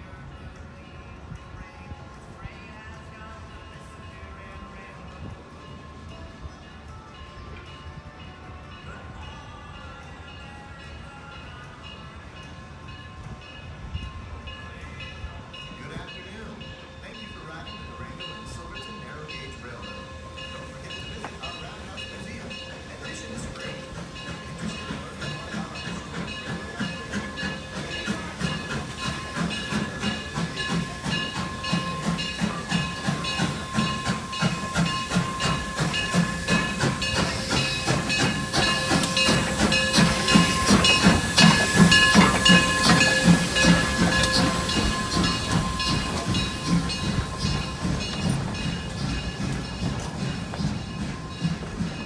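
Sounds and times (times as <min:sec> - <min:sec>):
steam locomotive exhaust chuffing: 0:16.1 - 0:52.0
steady high ringing: 0:16.6 - 0:52.0
steam hissing: 0:17.8 - 0:52.0.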